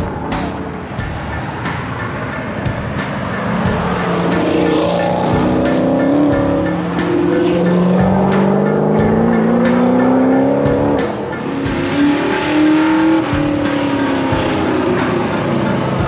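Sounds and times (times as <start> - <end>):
car engines running: 0.0 - 16.0
music playing: 0.0 - 16.0.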